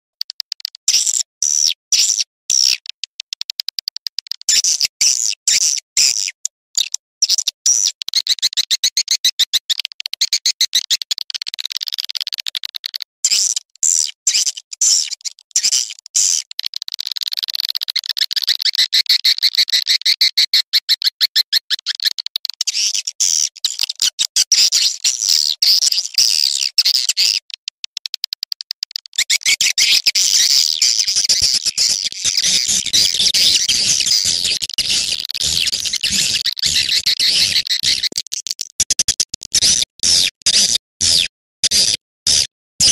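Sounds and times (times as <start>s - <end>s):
swiftlet twittering call: 29.2s - 39.1s.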